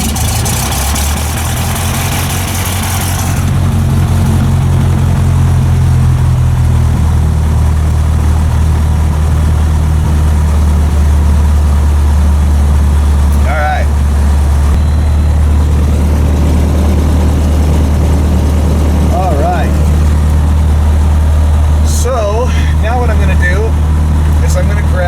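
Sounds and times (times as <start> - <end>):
airplane engine idling drone: 0.0 - 25.0.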